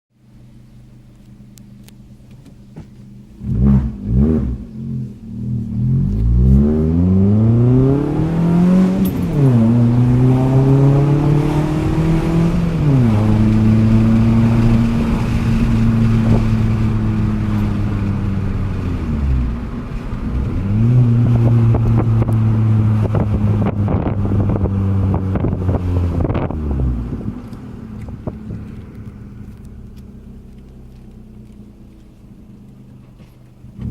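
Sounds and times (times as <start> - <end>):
car engine revving: 0.4 - 33.9.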